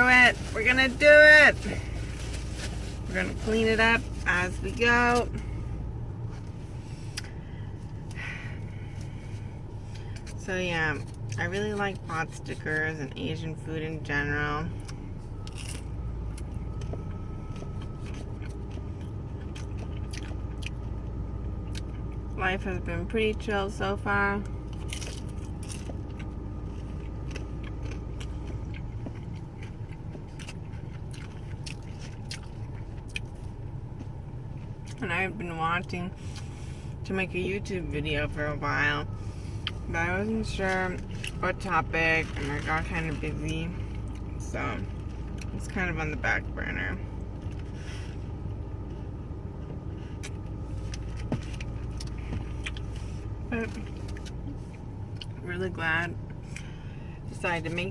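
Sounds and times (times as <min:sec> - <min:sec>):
low hum inside a car: 0:00.0 - 0:57.9
chewing and biting food: 0:14.8 - 0:22.3, 0:24.7 - 0:35.0.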